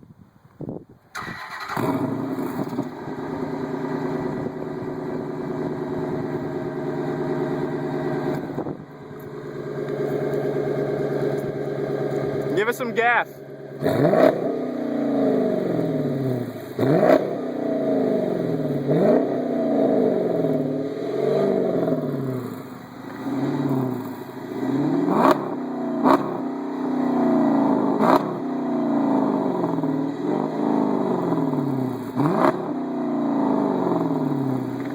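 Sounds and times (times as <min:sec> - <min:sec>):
car engine revving: 0:01.2 - 0:34.9.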